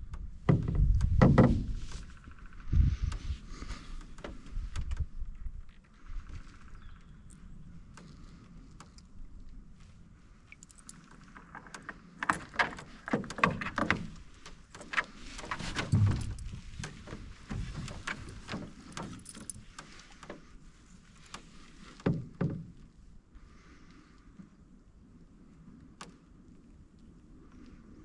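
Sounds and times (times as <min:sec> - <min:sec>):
boat creaking: 0:00.0 - 0:24.6
paddle knocking canoe hull: 0:00.1 - 0:02.1, 0:11.4 - 0:20.5, 0:21.4 - 0:22.9
low thud: 0:15.7 - 0:16.9.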